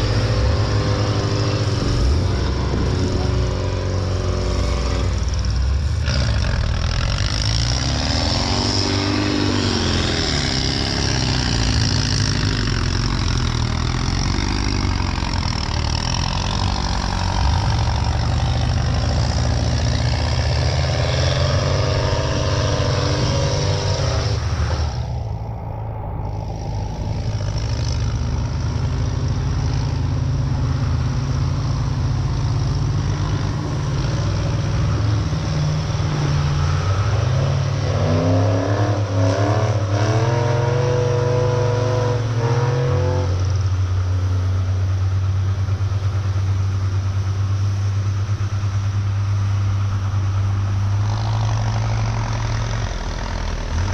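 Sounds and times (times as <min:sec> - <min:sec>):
truck engines revving: 0:00.0 - 0:53.9.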